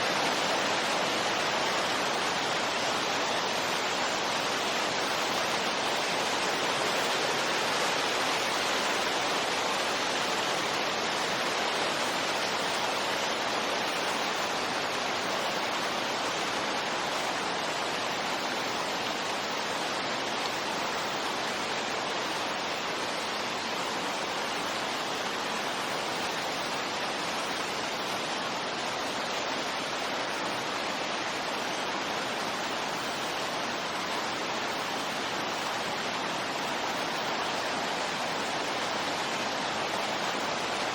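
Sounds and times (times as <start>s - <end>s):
steady rushing wind noise: 0.0s - 40.9s.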